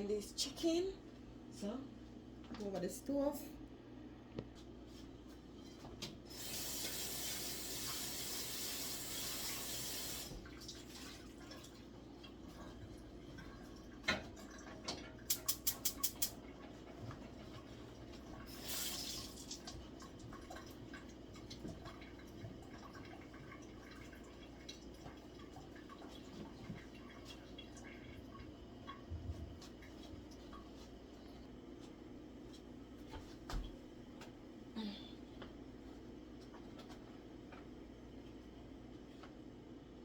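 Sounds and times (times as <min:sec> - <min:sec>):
water running from tap: 0:06.3 - 0:30.9.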